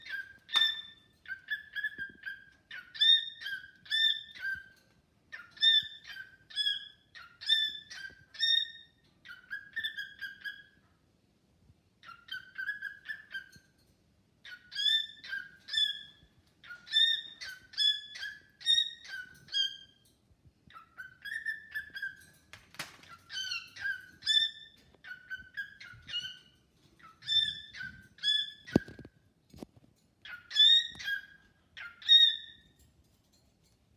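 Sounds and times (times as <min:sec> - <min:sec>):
cockatiel whistling: 0:05.4 - 0:10.8, 0:12.0 - 0:13.6, 0:14.5 - 0:19.8, 0:27.0 - 0:29.1.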